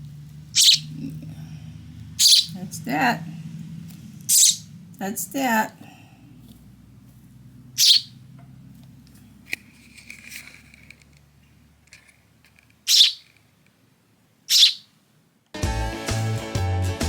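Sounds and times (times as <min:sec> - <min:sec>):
sparrow chirping: 0:00.4 - 0:05.0, 0:07.6 - 0:08.3, 0:12.8 - 0:13.3, 0:14.5 - 0:14.9.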